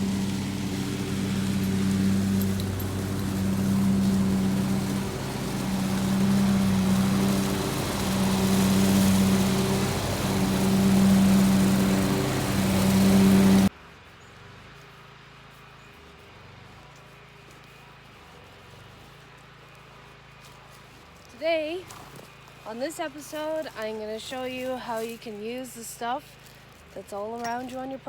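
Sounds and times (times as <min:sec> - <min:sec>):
leaf blower running: 0:00.0 - 0:13.7.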